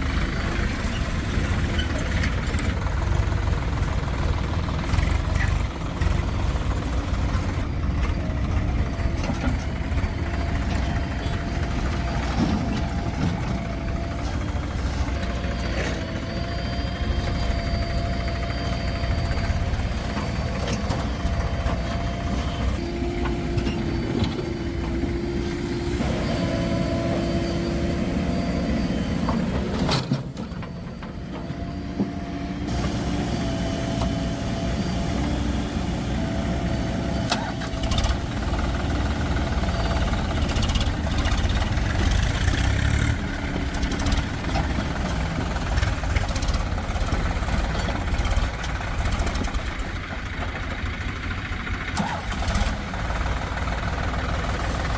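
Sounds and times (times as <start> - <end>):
diesel engines running: 0.0 - 54.9
whining tone shifting pitch: 10.0 - 42.3.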